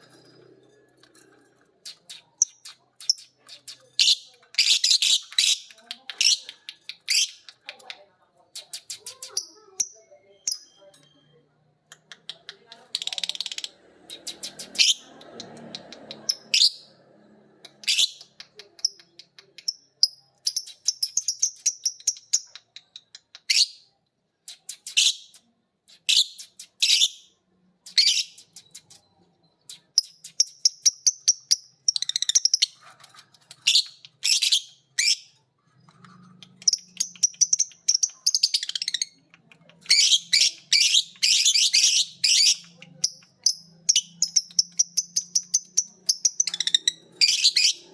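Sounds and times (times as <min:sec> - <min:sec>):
lovebirds chattering: 0:27.9 - 0:47.9.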